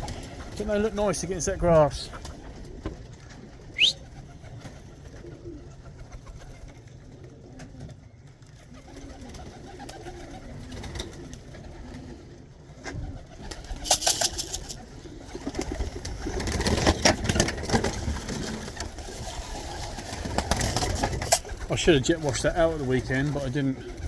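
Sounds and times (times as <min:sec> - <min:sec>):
pigeons cooing: 0:00.0 - 0:24.0
rustling and clattering: 0:13.6 - 0:23.4.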